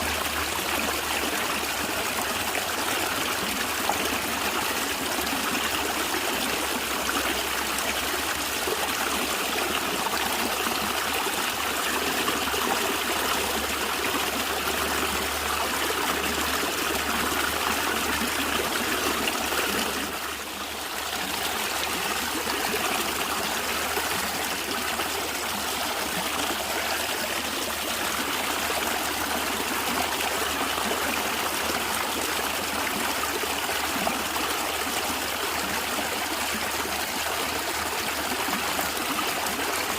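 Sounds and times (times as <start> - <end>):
stream water gurgling: 0.0 - 39.9.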